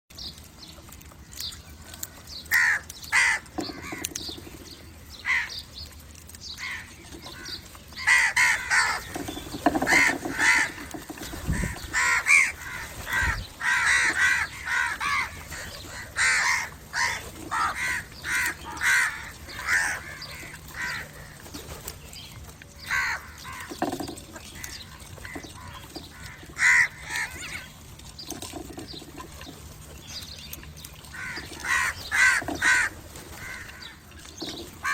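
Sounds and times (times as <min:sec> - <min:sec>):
crows cawing: 0:02.5 - 0:04.3, 0:05.2 - 0:05.6, 0:06.6 - 0:21.4, 0:22.8 - 0:27.6, 0:31.1 - 0:34.0.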